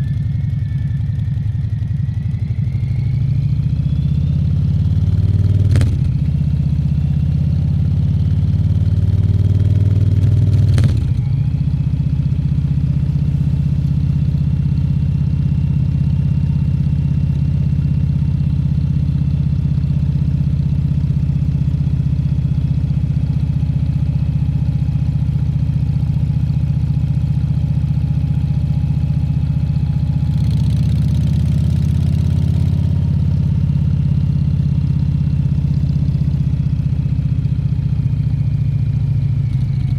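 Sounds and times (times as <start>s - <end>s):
motorcycle engine revving: 3.4s - 15.0s
gear change: 10.2s - 11.4s.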